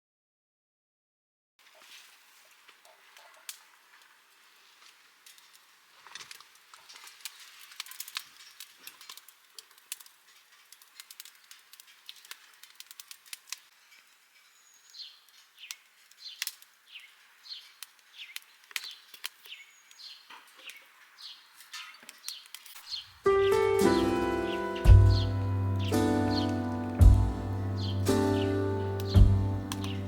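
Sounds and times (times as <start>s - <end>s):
faint campfire crackling: 1.6s - 30.0s
sharp fire pops: 1.8s - 13.7s, 15.2s - 17.1s, 17.7s - 20.8s, 23.8s - 30.0s
small bird chirping: 14.0s - 23.6s, 24.4s - 30.0s.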